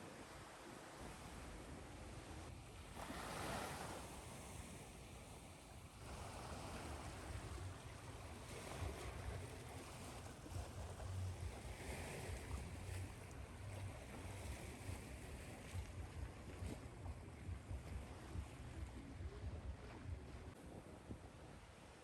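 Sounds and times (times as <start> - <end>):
ocean surf washing on shore: 3.0 - 16.9.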